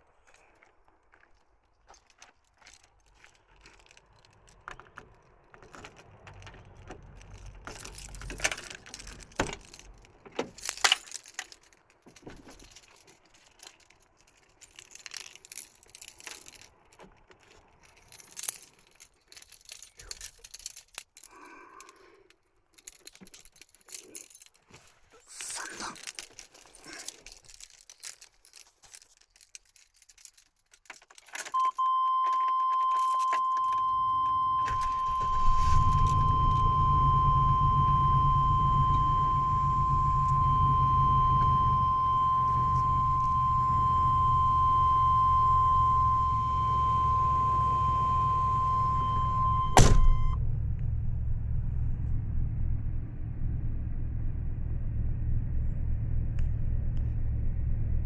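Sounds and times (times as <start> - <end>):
keys jangling: 0.3 - 50.4
van engine starting and idling: 4.4 - 11.0, 31.6 - 58.0
high warning tone: 31.5 - 50.4.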